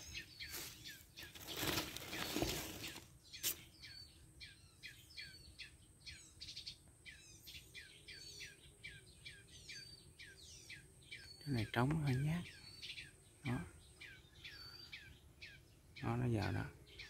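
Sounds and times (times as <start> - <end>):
rustling: 0.0 - 3.6
songbirds chirping: 0.0 - 17.0.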